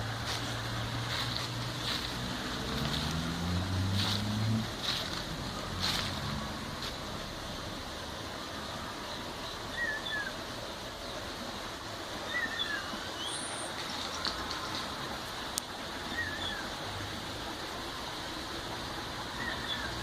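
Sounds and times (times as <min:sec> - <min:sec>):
river water rushing: 0:00.0 - 0:20.0
faint bird chirps: 0:09.0 - 0:10.4, 0:12.3 - 0:14.8.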